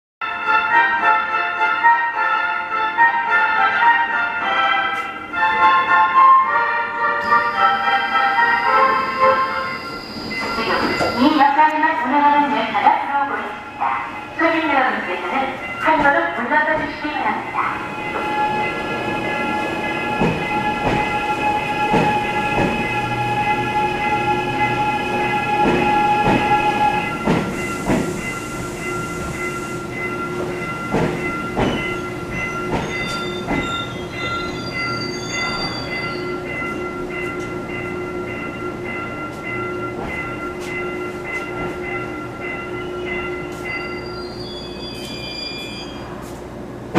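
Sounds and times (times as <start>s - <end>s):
train wheels clacking over rail joints: 20.1s - 21.2s, 21.9s - 22.9s, 30.9s - 31.9s.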